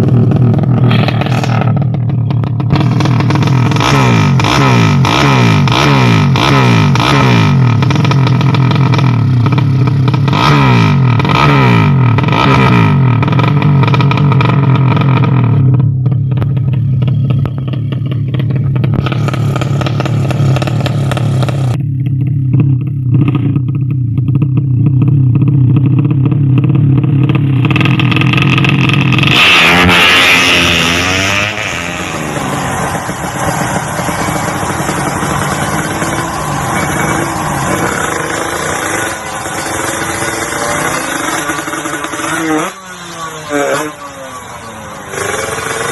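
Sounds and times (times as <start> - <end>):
motorcycle engines revving: 0.0 - 45.9
short burst of noise: 0.8 - 2.0.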